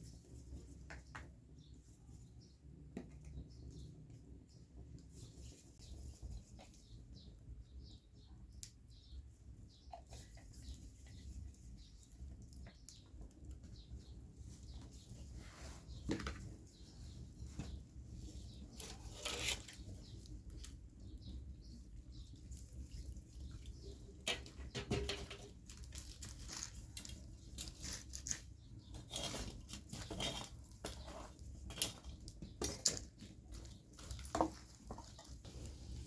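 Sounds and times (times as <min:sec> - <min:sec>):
hands handling food and utensils: 0:14.6 - 0:36.0.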